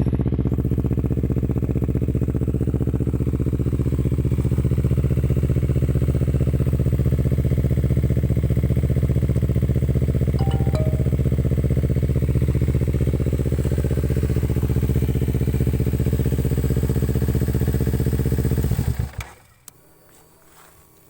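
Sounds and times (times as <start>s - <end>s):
motorcycle engine idling: 0.1s - 9.9s, 13.1s - 19.2s.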